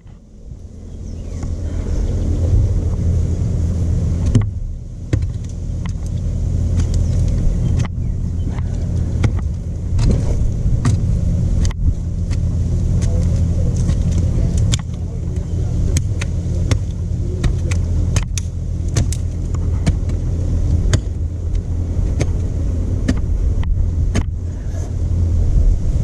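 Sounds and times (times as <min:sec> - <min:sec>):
stump grinder engine running: 0:01.0 - 0:24.2
sharp clicks and knocks: 0:04.2 - 0:24.4.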